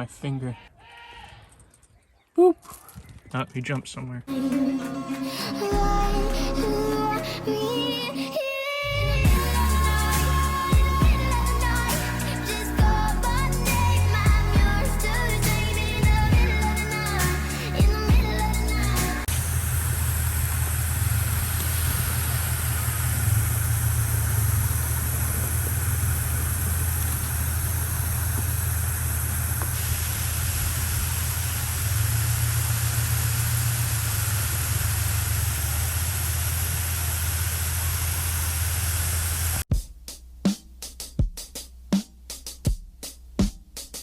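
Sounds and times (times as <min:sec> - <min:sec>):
low engine rumble with hiss: 0:08.9 - 0:39.6.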